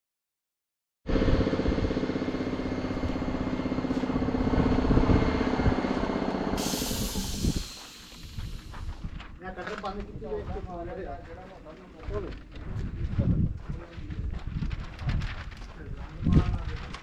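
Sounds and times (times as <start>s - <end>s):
engine running with fast pulse: 1.1s - 9.2s
hiss: 6.6s - 9.2s.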